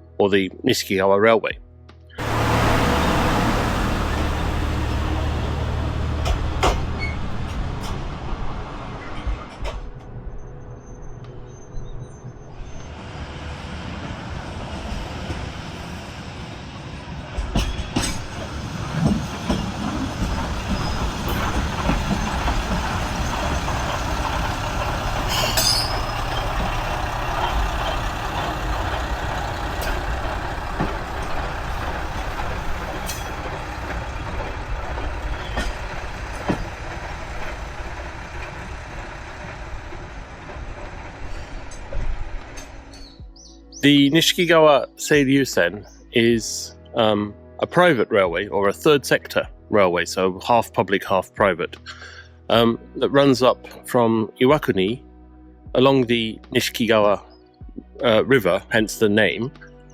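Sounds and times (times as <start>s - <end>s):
diesel railcar engine hum: 2.1s - 44.2s.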